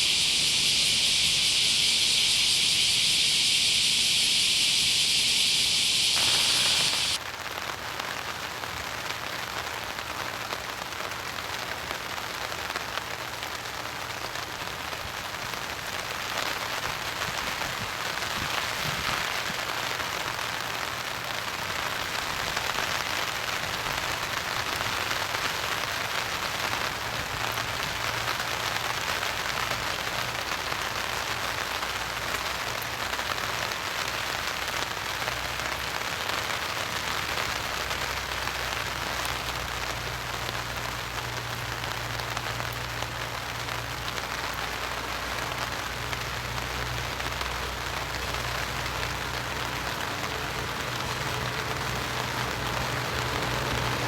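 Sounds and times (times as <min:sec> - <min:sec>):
low steady hum: 0:00.0 - 0:07.2
steady rain falling: 0:00.0 - 0:54.0.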